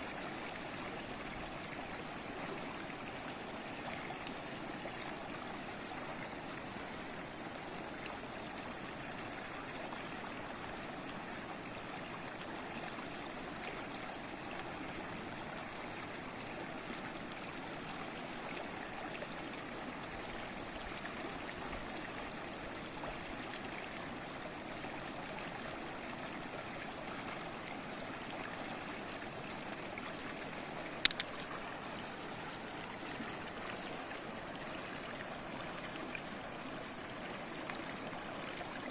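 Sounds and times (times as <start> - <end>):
water running over stones: 30.8 - 31.8.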